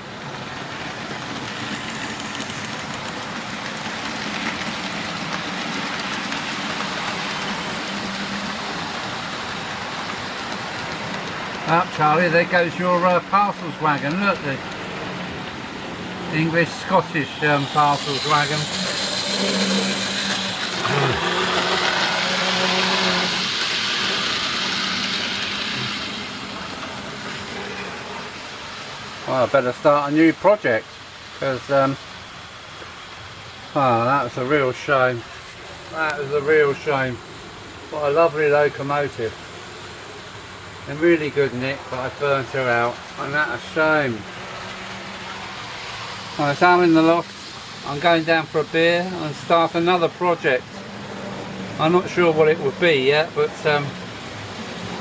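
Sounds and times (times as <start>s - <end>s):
wheels rolling over rails: 0.5s - 27.8s
model train motors whirring: 0.7s - 29.0s.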